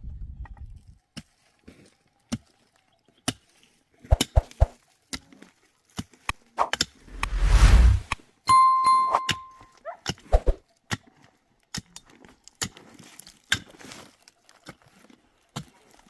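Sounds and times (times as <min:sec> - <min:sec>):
whoosh: 0:06.6 - 0:08.2.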